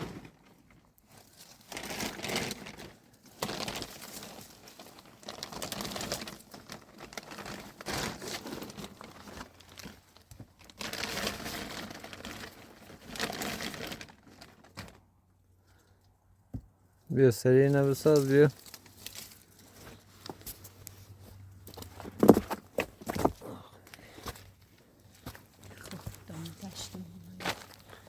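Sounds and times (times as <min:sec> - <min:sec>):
plastic sheeting crinkling: 0:00.0 - 0:15.0, 0:17.6 - 0:21.2, 0:25.1 - 0:28.0.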